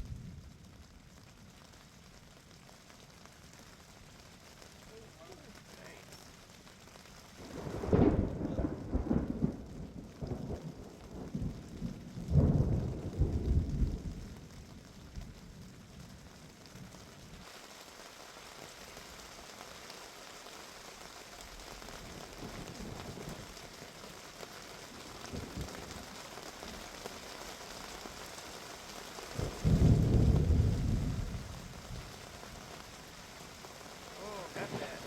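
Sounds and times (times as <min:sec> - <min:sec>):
faint low thunder rumbles: 0:00.0 - 0:02.2, 0:07.4 - 0:17.4, 0:22.0 - 0:24.0, 0:24.8 - 0:27.2, 0:29.3 - 0:35.0
heavy rain falling: 0:00.0 - 0:35.0
loud thunder rumble: 0:07.4 - 0:14.3, 0:29.4 - 0:32.2.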